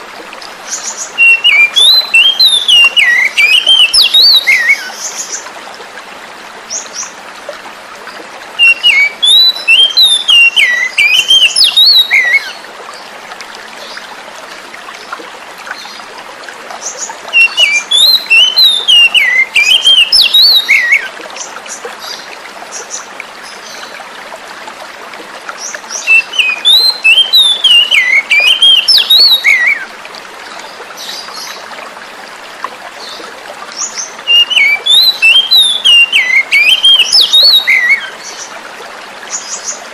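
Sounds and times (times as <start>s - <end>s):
flowing water: 0.0s - 39.9s
bird singing whistled phrases: 1.2s - 4.9s, 8.6s - 12.6s, 17.3s - 21.1s, 26.0s - 29.9s, 34.3s - 38.1s.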